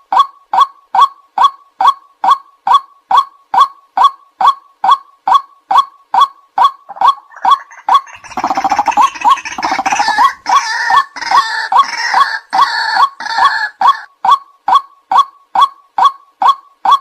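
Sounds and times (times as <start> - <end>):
bird calling kwak: 0.1 - 17.0
rapid rattling chatter: 8.2 - 10.5.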